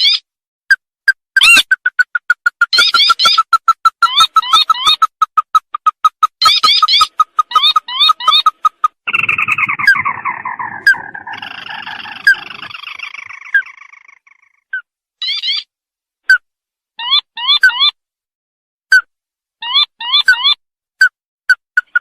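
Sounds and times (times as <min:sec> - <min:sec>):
bird chattering trill: 0:01.4 - 0:15.6
bird piping notes and chirps: 0:01.4 - 0:15.7.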